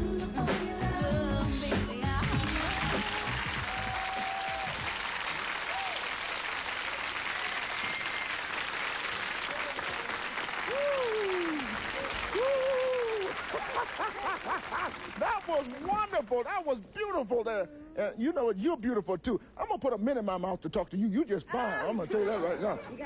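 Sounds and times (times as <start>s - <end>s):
audience applauding: 2.2s - 16.5s
audience cheering: 2.3s - 16.4s.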